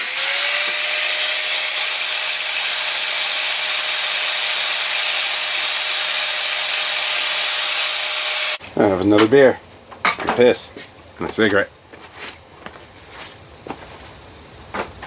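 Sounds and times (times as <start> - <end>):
abrasive wheel grinding steel: 0.0 - 8.6
motor whine: 0.0 - 8.6.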